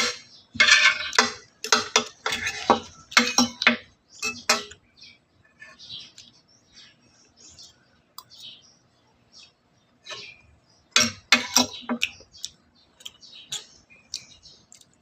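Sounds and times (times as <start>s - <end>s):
utensils clinking against dishes: 0.0s - 4.8s, 11.0s - 12.0s.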